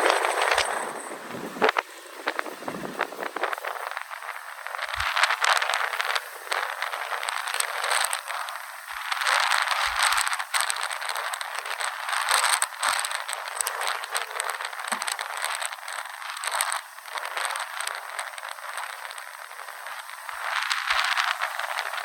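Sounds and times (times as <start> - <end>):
strong wind gusting: 0.0 - 7.4
rattling and crackling clicks: 0.0 - 22.0.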